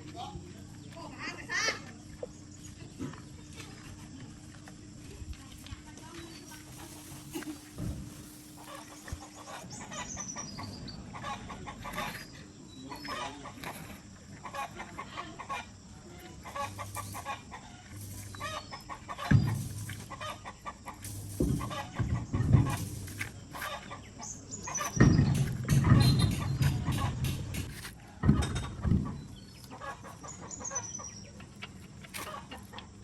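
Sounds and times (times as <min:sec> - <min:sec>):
chickens clucking: 0:06.2 - 0:33.0
heavy thumps: 0:07.3 - 0:08.7, 0:19.2 - 0:20.2, 0:21.0 - 0:23.5, 0:24.8 - 0:29.2.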